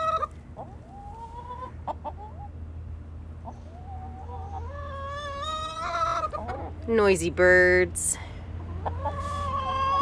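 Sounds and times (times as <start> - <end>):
chickens clucking: 0.0 - 2.6, 3.3 - 6.9, 8.5 - 10.0
drawn-out rising chicken calls: 0.0 - 2.6, 3.4 - 6.8, 8.4 - 10.0.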